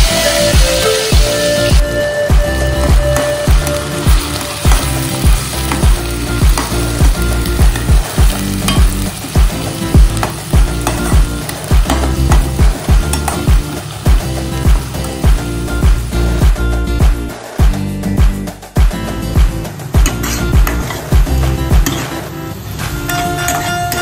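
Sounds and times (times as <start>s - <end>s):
food sizzling in hot oil: 0.0s - 17.1s
music with bass beat: 0.0s - 23.4s
metal spatula scraping pan: 20.1s - 21.1s, 21.8s - 24.0s.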